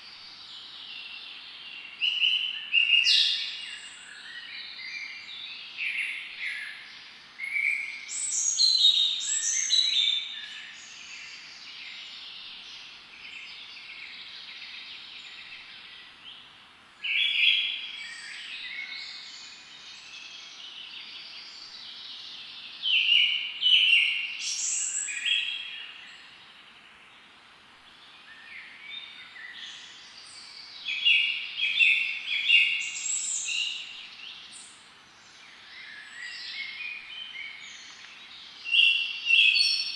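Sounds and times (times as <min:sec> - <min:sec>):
outdoor background hiss: 0:00.0 - 0:39.9
birds singing and chirping: 0:17.2 - 0:26.4, 0:28.1 - 0:39.9.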